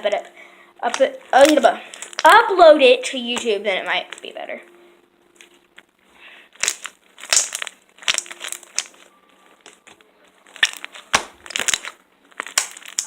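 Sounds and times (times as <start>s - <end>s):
slime crackling and popping: 0.8s - 4.3s, 6.5s - 13.0s.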